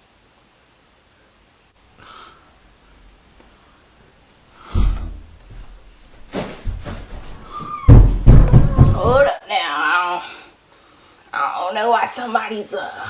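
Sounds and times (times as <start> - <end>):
person breathing out: 2.0 - 2.5
sharp intake of breath: 2.0 - 2.6
breath thumping on microphone: 4.6 - 9.3.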